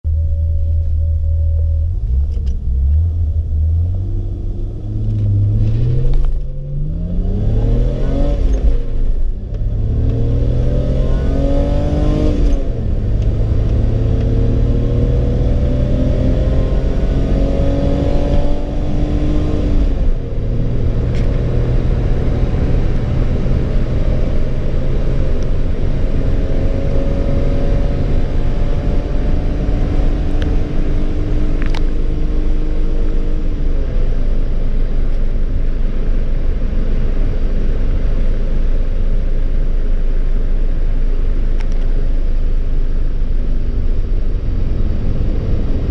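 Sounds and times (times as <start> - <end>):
car engine accelerating through gears: 0.1 - 45.9.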